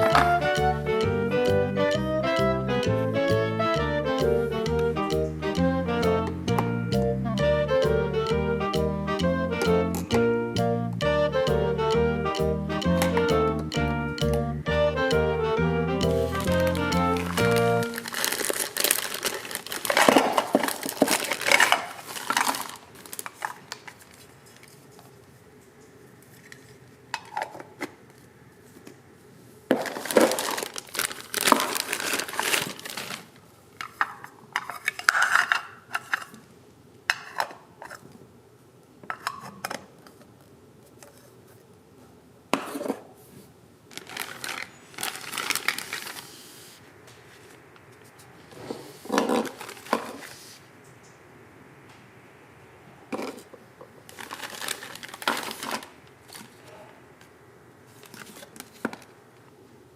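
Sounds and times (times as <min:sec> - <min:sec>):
toy kitchen pieces clattering: 0:17.4 - 0:24.0, 0:29.7 - 0:33.2, 0:33.8 - 0:36.4.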